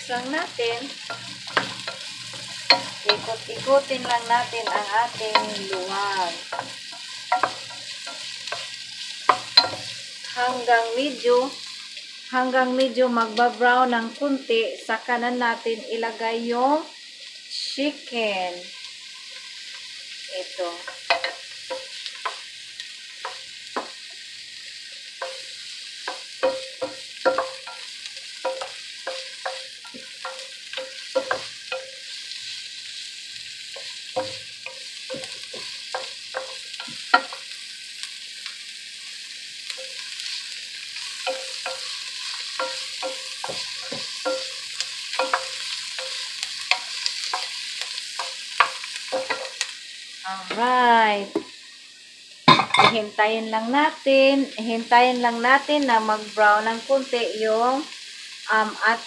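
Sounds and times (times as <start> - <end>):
garlic and onions sizzling: 0.0 - 59.0.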